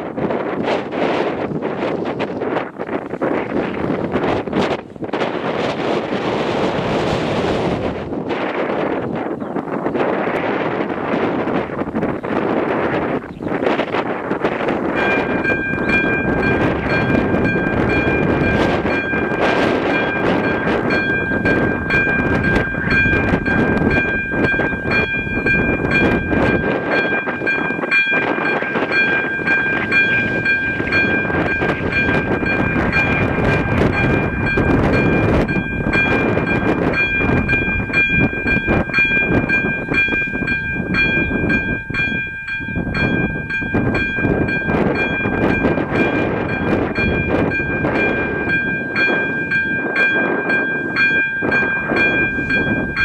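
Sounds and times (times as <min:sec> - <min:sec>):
train wheels rumbling on rails: 0:00.0 - 0:53.0
crossing warning bell ringing: 0:00.1 - 0:53.0.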